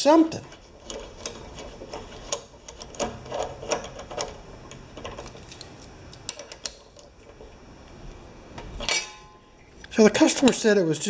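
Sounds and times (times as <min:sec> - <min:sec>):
tools and metal parts clicking: 0:00.5 - 0:07.1, 0:08.8 - 0:09.3.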